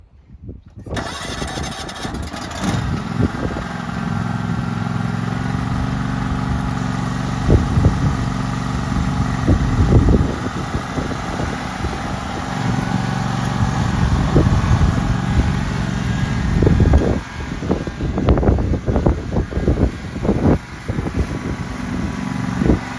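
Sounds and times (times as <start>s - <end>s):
lawn tractor engine idling: 0.9s - 22.9s.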